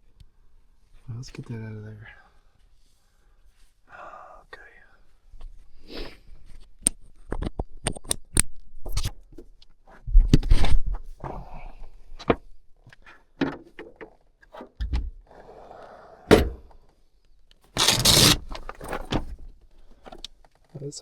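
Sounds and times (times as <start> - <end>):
scraping and rustling: 17.7 - 19.3.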